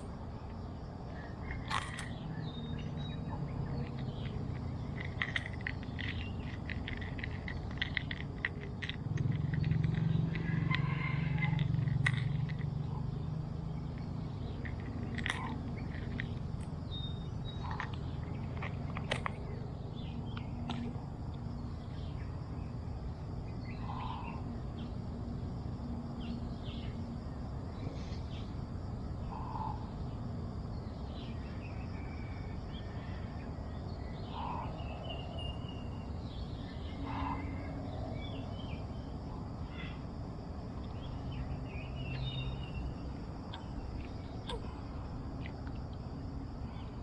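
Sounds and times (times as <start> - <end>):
outdoor ambience: 0.0 - 47.0
birds chirping and calling: 1.0 - 21.0, 23.5 - 25.0, 30.8 - 40.2, 40.8 - 45.5.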